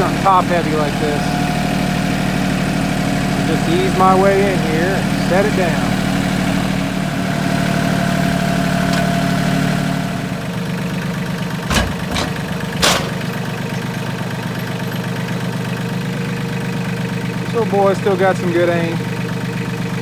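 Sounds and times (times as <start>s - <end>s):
engine idling: 0.0s - 20.0s
sharp metal clanks: 11.6s - 15.1s.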